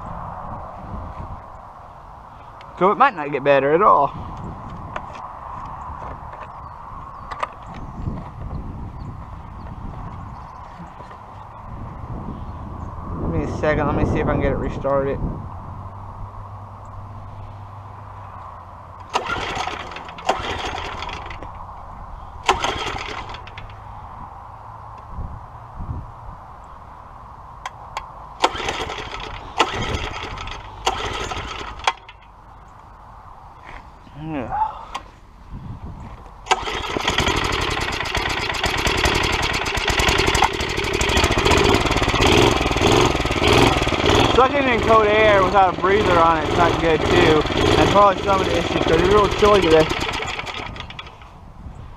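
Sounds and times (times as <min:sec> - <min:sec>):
recoil starter pulls: 0:19.0 - 0:21.5, 0:22.4 - 0:23.8, 0:28.4 - 0:32.2, 0:36.5 - 0:51.3
small engine turning over: 0:19.0 - 0:21.5, 0:22.4 - 0:23.8, 0:28.4 - 0:32.2, 0:36.5 - 0:51.4.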